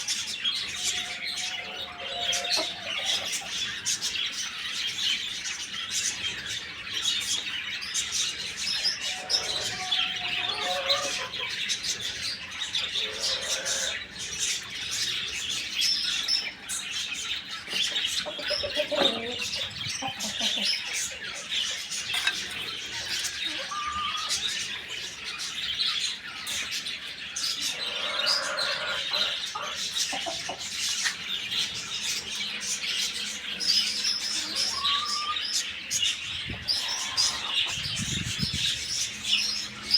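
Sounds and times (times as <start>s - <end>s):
small birds chirping: 0.0s - 39.9s
lower bird calls: 23.2s - 24.9s, 33.3s - 35.8s.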